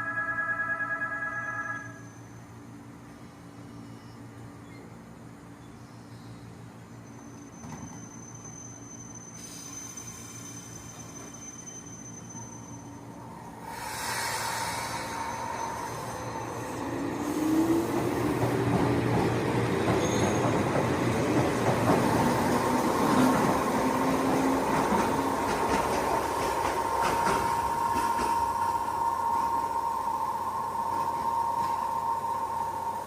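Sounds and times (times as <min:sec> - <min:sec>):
steady high tone: 0:00.0 - 0:02.4, 0:12.9 - 0:18.9, 0:22.2 - 0:33.0
train rumble: 0:12.8 - 0:33.0
train motor whine: 0:13.4 - 0:33.0
wheels clicking over rails: 0:17.8 - 0:28.6.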